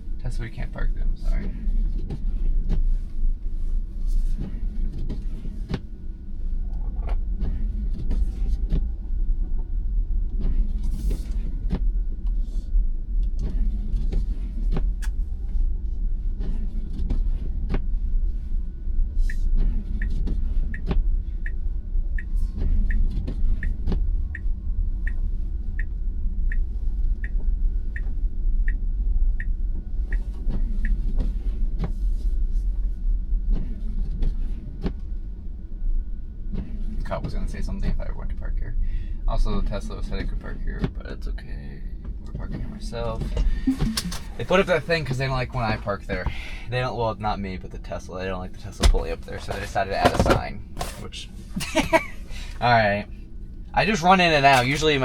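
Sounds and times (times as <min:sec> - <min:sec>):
car cabin rumble: 0:00.0 - 0:55.0
turn signal ticking: 0:19.2 - 0:32.0.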